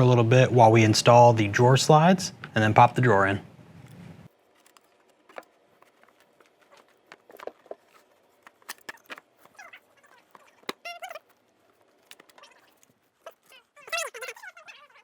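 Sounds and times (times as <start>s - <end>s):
clicks and knocks of wooden parts: 4.3s - 14.6s.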